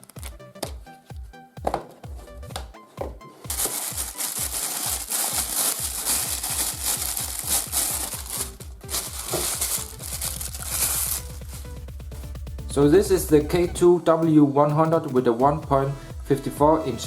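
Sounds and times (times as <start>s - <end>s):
electronic dance music: 3.4s - 17.0s.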